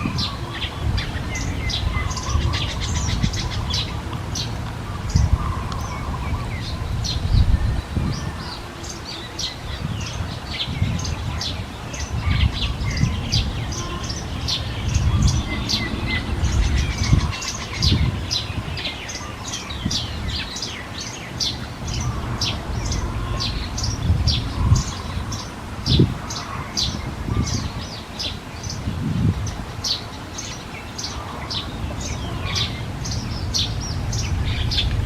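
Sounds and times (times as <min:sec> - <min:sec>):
small birds chirping: 0:00.0 - 0:35.0
low rumble: 0:32.0 - 0:35.0.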